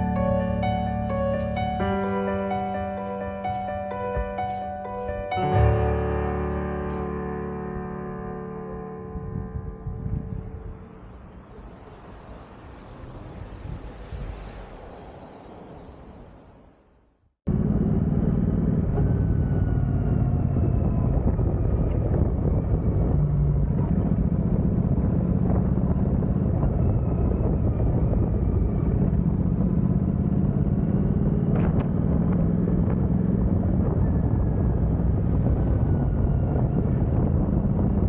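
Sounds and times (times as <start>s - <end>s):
car engine hum: 0.0s - 4.5s
road noise: 0.0s - 38.0s.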